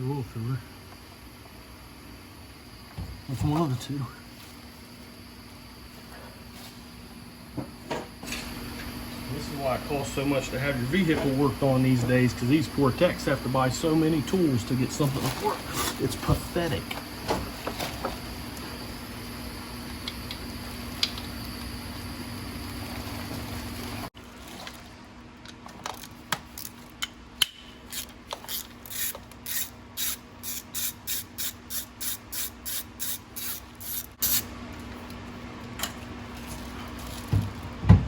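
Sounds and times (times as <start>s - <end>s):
steady low hum: 0.0s - 38.0s
ratchet wrench clicking: 27.4s - 34.4s.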